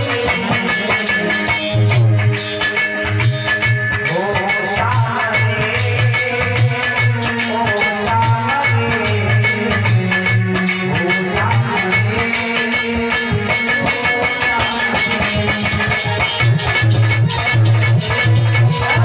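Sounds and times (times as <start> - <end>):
instrumental devotional music: 0.0 - 19.0.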